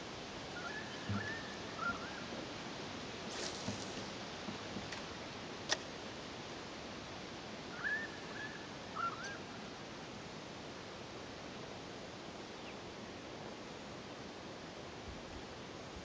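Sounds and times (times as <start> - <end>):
steady low hiss: 0.0 - 16.0
short bird calls: 0.6 - 2.3, 7.8 - 9.5.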